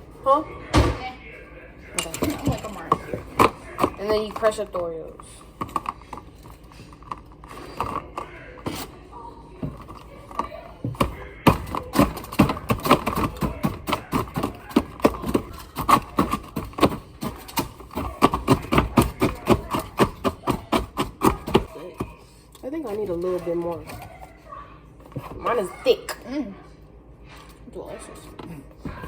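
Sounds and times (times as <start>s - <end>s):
fork crushing cookies in a mug: 2.0s - 9.0s, 9.6s - 24.3s.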